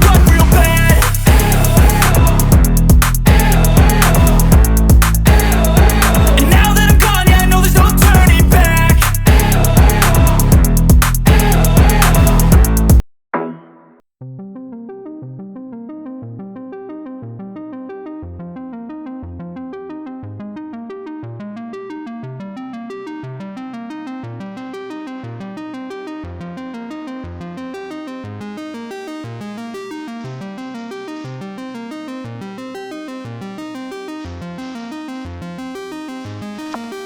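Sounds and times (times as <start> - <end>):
keyboard music with bass: 0.0 - 14.0.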